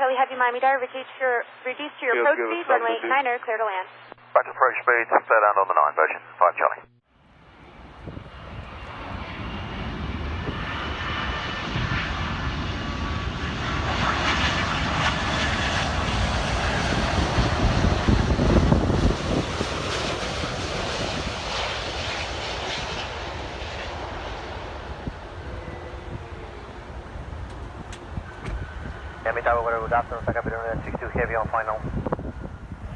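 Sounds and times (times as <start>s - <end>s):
jet airliner engines passing: 7.2s - 32.9s.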